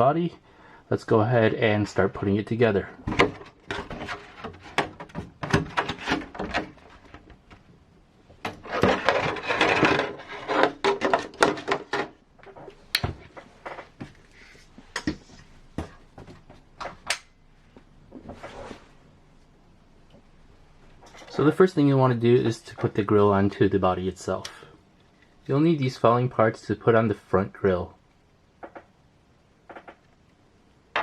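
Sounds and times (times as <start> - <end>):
plastic parts clicking and knocking: 3.0 - 7.7, 8.4 - 14.0, 28.6 - 29.0, 29.6 - 31.0
plastic parts rustling: 8.4 - 14.6.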